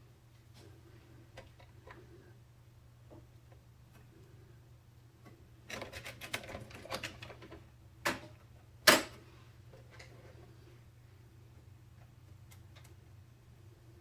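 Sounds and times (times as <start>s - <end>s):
computer parts clicking and rattling: 5.7s - 8.2s.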